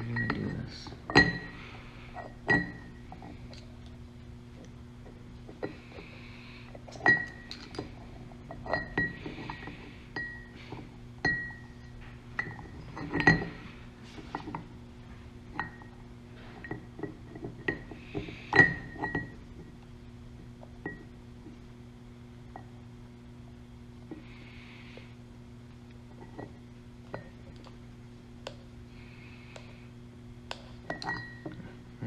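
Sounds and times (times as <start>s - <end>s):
steady low hum: 0.0s - 32.0s
metal clinks and taps: 30.5s - 31.6s.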